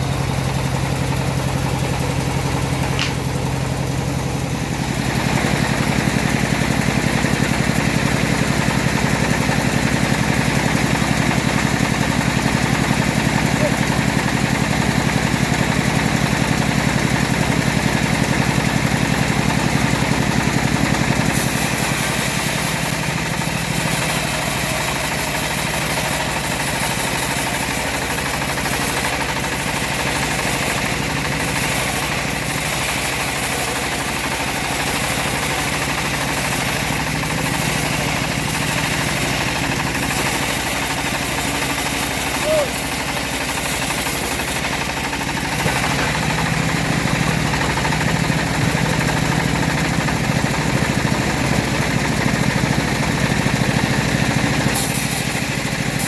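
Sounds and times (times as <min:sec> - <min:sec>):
sawmill engine running: 0:00.0 - 0:56.0
saw blade hissing through wood: 0:21.1 - 0:48.9, 0:54.1 - 0:56.0.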